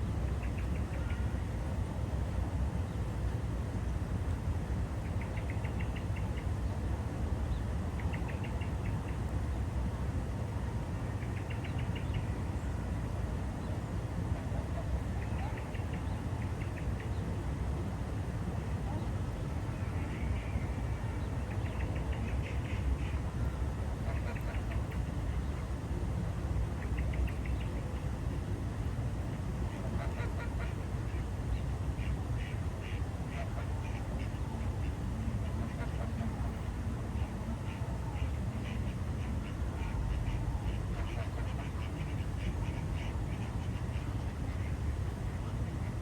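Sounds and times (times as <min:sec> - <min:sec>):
ducks quacking: 0:29.7 - 0:31.2, 0:32.0 - 0:36.6, 0:37.2 - 0:44.3.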